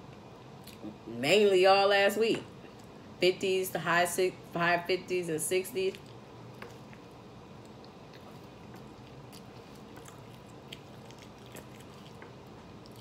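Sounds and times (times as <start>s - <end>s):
person chewing: 6.0s - 13.0s
wet mouth sounds: 6.0s - 13.0s.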